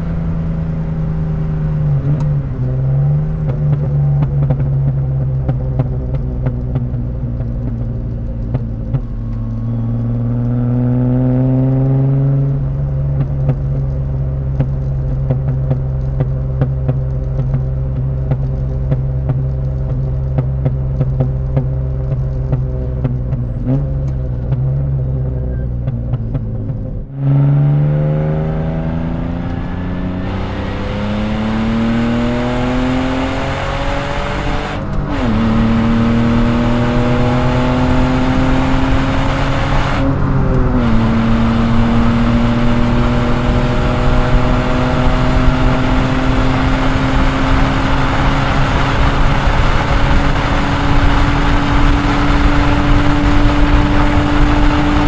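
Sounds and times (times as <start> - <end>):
exhaust crackles: 0.0 - 33.5
car engine revving: 0.0 - 55.0.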